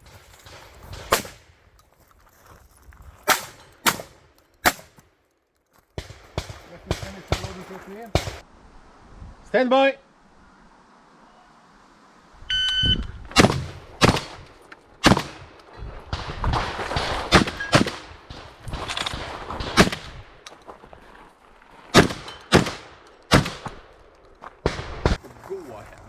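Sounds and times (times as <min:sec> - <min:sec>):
shotgun shots: 0:00.0 - 0:01.6, 0:03.2 - 0:05.0, 0:06.0 - 0:08.4, 0:13.3 - 0:20.3, 0:21.9 - 0:23.9.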